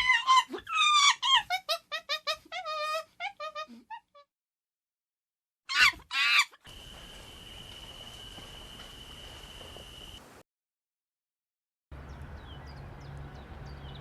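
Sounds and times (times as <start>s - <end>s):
background hiss: 6.7s - 10.4s.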